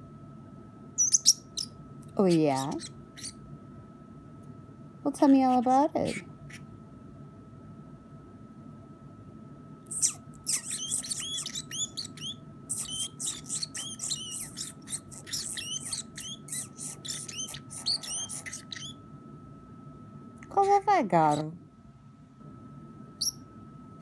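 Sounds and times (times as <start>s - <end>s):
parrotlet chattering: 1.0s - 3.4s, 5.5s - 6.6s, 9.9s - 19.0s.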